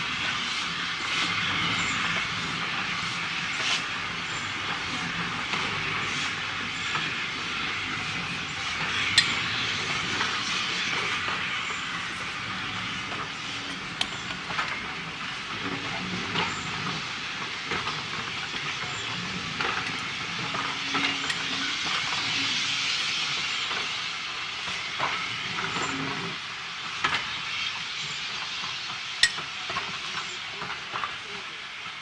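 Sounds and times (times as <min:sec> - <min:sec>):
train wheels hissing on rail: 0:00.0 - 0:32.0.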